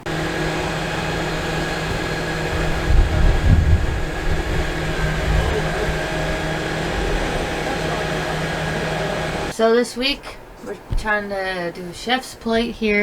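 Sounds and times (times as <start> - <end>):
low rumbles: 0.0 - 9.5
steady machine hum: 0.0 - 12.1.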